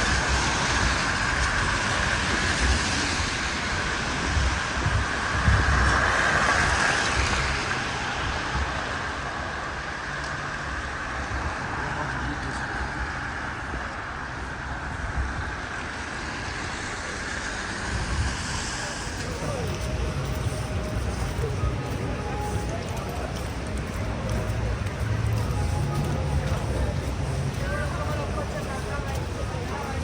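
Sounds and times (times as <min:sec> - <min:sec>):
steady traffic noise: 0:00.0 - 0:30.0
vehicle passing: 0:16.8 - 0:30.0.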